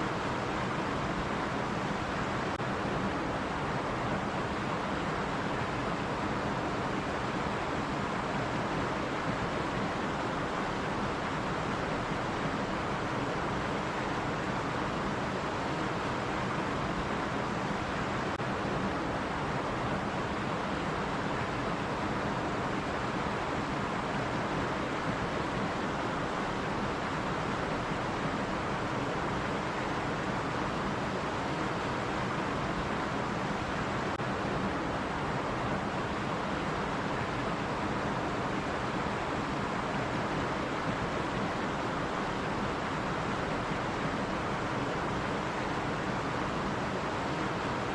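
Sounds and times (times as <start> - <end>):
stream water rushing: 0.0 - 47.9.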